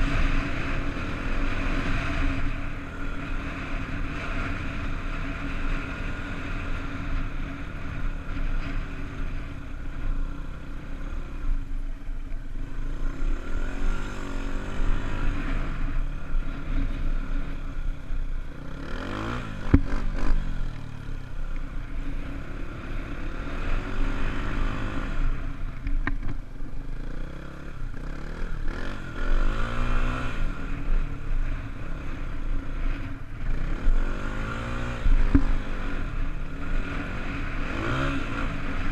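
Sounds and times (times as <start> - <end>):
dirt bike engine revving: 18.6 - 21.0, 27.0 - 38.9.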